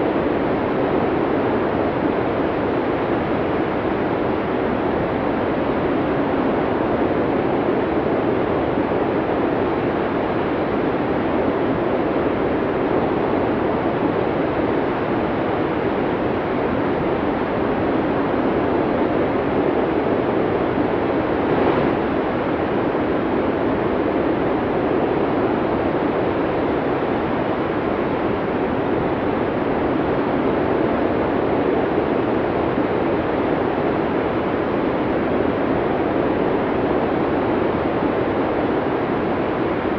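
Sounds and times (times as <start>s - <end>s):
strong wind rushing: 19.6s - 24.1s.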